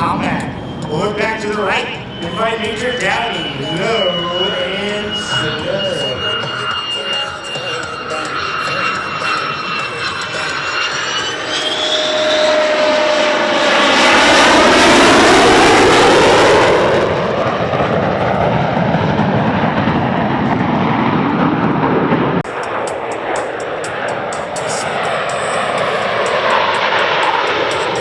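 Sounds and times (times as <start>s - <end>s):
jet flying past: 0.0s - 28.0s.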